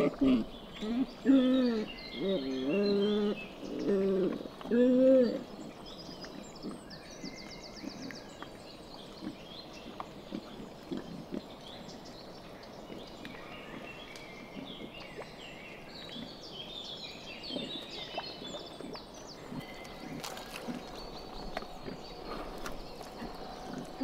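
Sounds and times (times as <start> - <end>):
small birds chirping: 0.0 - 24.0
piglets grunting and snuffling: 18.4 - 24.0
piglets rooting in straw: 18.4 - 24.0.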